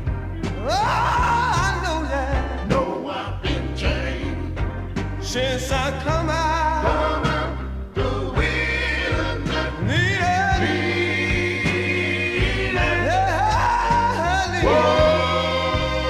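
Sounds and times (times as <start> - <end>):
band accompaniment: 0.0 - 16.0
gospel group singing: 0.0 - 16.0
steady bass line: 0.0 - 16.0.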